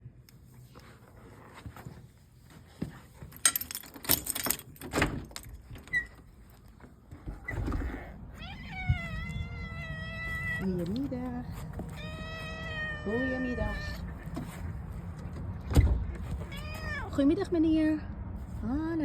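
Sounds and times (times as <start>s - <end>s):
rustling and clattering handling: 0.3s - 8.0s, 10.2s - 12.6s, 13.6s - 17.2s
cat meowing: 8.0s - 10.8s, 11.9s - 14.2s, 16.4s - 17.2s.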